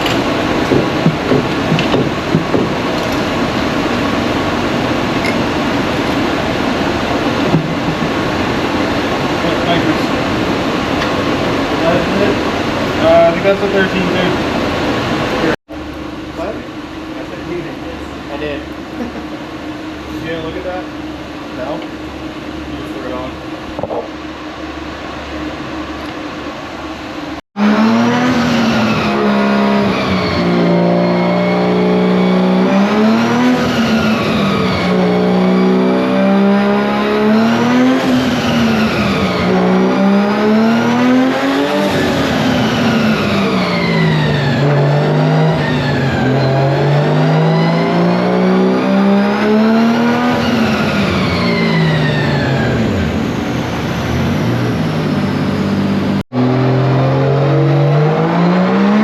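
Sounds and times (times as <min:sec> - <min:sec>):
car engine revving: 0:00.0 - 0:23.4, 0:27.2 - 0:59.0.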